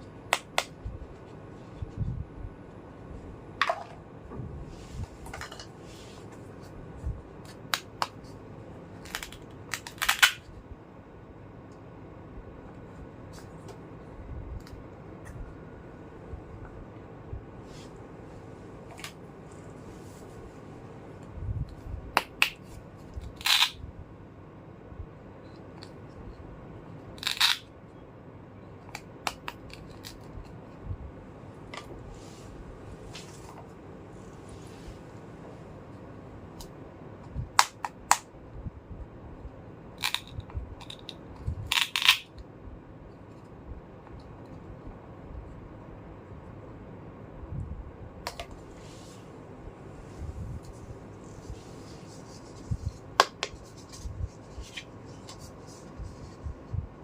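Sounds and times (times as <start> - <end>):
plastic toy pieces clicking: 9.0 - 10.4, 23.3 - 23.8, 27.2 - 27.7, 40.0 - 42.3.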